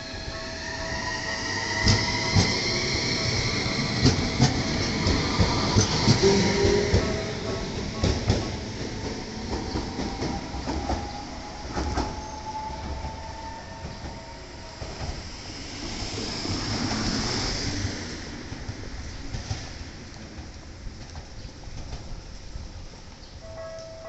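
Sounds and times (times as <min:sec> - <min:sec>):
train rumbling on rails: 0:00.0 - 0:24.0.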